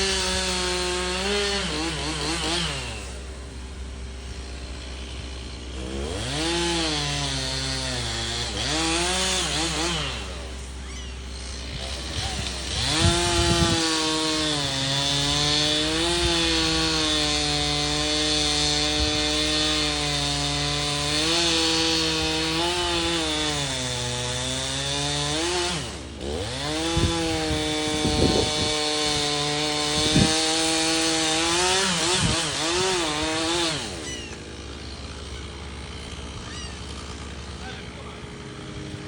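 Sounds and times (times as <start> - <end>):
chainsaw cutting timber: 0.0 - 39.0.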